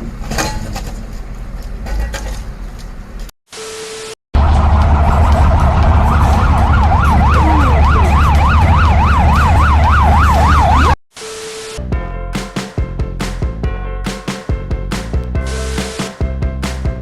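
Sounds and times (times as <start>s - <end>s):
vehicle engine rumble: 0.0s - 3.3s, 4.4s - 10.9s
siren yelping: 4.4s - 11.0s.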